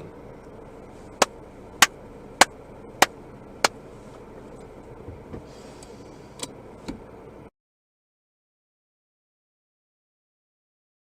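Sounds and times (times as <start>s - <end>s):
turn signal ticking: 0.0s - 3.9s
road noise: 0.0s - 7.5s.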